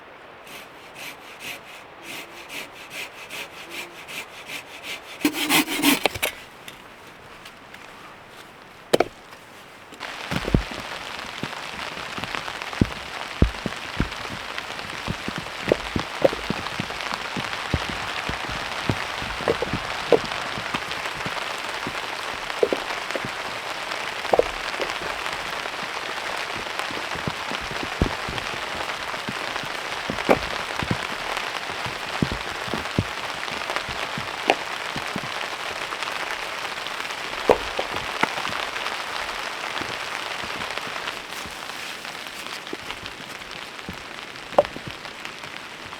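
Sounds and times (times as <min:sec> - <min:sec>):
heavy rain falling: 0:09.5 - 0:45.9.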